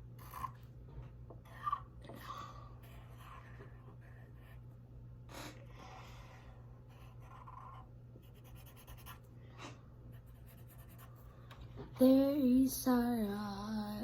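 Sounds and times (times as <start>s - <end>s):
drawing tool scratching paper: 6.9s - 9.2s.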